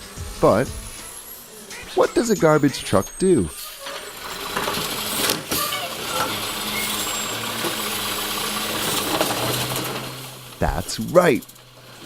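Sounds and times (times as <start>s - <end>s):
garbage truck engine drone: 0.0s - 12.0s.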